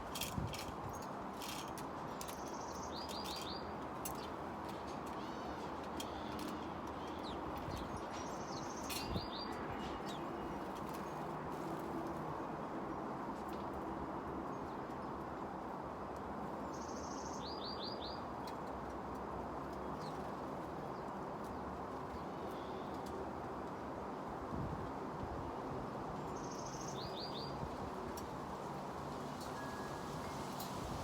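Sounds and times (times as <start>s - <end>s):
wind: 0.0s - 31.0s.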